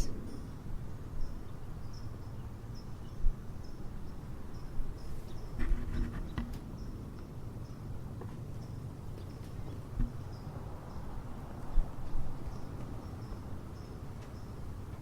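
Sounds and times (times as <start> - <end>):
low background rumble: 0.0 - 5.5
crickets chirping: 0.0 - 5.6, 8.6 - 14.8.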